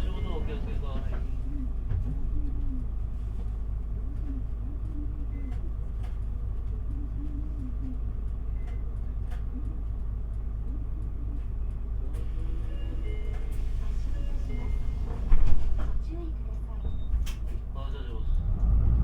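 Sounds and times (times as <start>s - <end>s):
diesel engine rumble: 0.0s - 19.0s.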